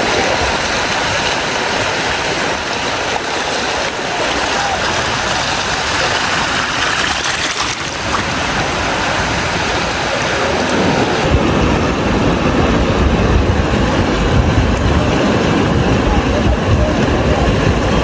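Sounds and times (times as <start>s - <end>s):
waves rushing on a beach: 0.0s - 18.0s
deep low rumble: 4.4s - 18.0s.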